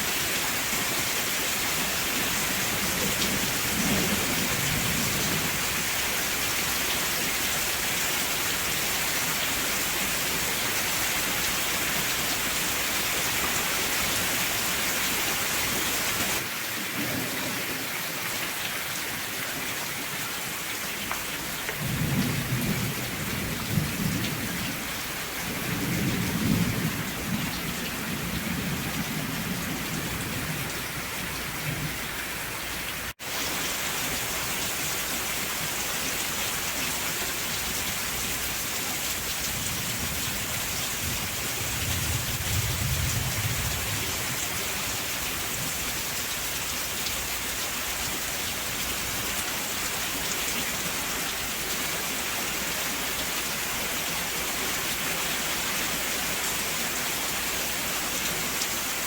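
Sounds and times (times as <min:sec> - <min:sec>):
rain falling: 0:00.0 - 0:59.0
thunder rolling: 0:21.8 - 0:32.0, 0:41.0 - 0:44.4.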